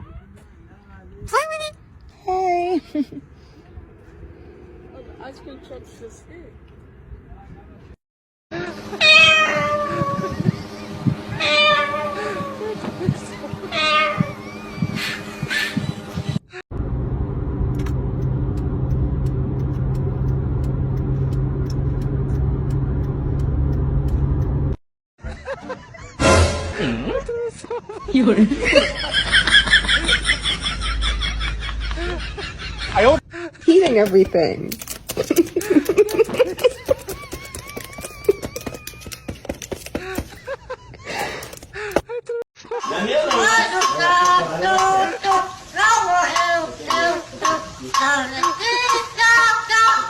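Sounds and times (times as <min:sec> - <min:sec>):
low rumble with constant hum: 0:08.6 - 0:24.8
rapid sharp clicking: 0:34.0 - 0:40.4.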